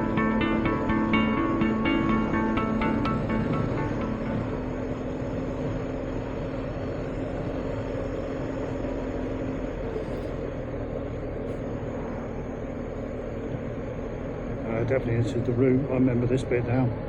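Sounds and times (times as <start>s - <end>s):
motorcycle engine cruising: 0.0s - 10.9s
road noise: 0.0s - 17.0s.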